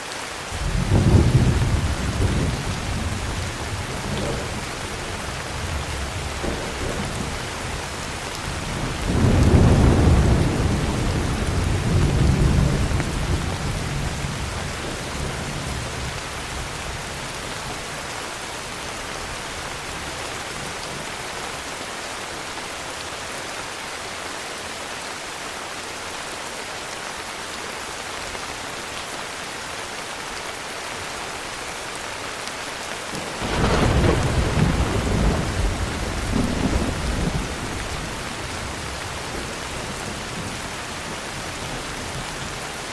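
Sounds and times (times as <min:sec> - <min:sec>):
heavy rain: 0:00.0 - 0:42.9
thunder rumbling: 0:00.6 - 0:17.0, 0:33.2 - 0:42.2.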